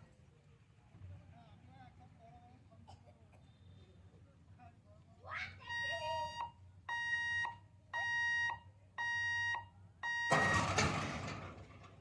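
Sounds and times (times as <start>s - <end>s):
level crossing warning beeper: 5.7s - 11.1s.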